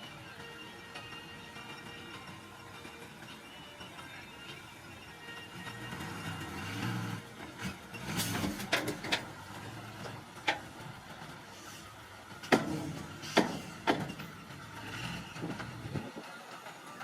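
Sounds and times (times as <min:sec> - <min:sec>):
bulldozer diesel engine running: 0:00.0 - 0:17.0
sharp metallic knocks: 0:12.4 - 0:14.3.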